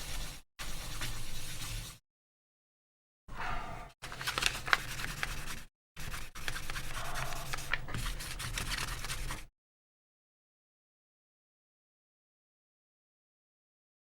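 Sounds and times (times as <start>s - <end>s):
wet-sanding plastic by hand: 4.0s - 9.5s.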